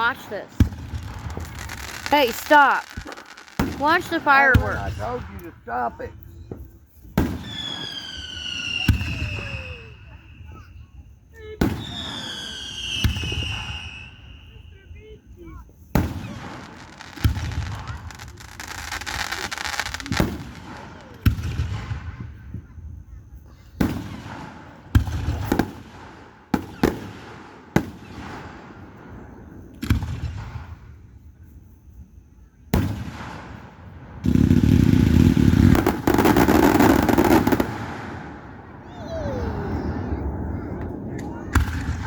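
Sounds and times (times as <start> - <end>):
fireworks booming: 0.0 - 10.2, 15.9 - 22.5, 23.8 - 31.0, 32.7 - 42.0
fireworks crackle: 0.0 - 10.7, 15.9 - 21.9, 32.8 - 39.0.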